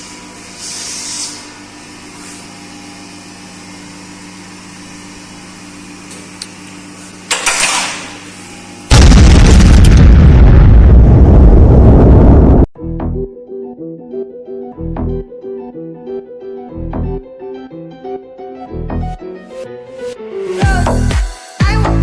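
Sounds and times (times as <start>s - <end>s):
espresso machine humming: 1.8s - 7.3s.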